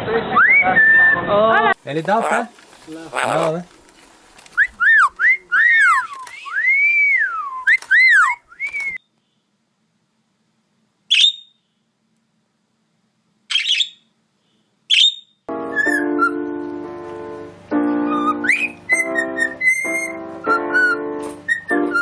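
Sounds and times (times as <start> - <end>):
parrot chirps: 3.1 - 3.5, 4.6 - 6.6, 7.5 - 9.0, 11.1 - 11.7, 13.5 - 14.1, 14.9 - 16.3, 18.2 - 20.1
keyboard melody music: 15.5 - 22.0.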